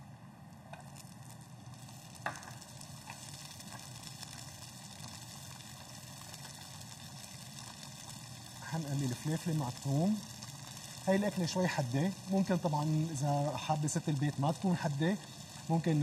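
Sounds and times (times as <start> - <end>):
peppers sizzling in a frying pan: 0.4 - 16.0
knock on the pan: 2.2 - 2.6.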